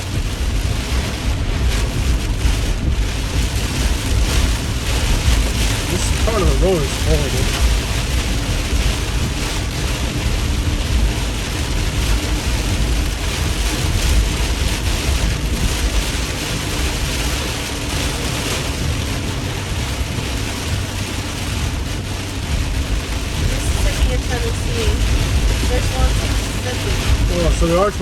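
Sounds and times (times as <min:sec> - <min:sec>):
heavy rain on car: 0:00.0 - 0:28.0
low road rumble: 0:00.0 - 0:28.0.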